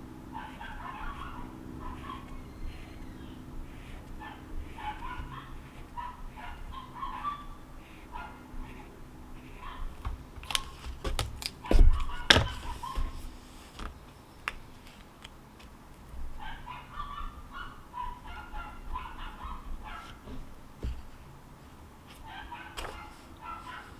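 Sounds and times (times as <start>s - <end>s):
short bird calls: 0.4s - 9.8s.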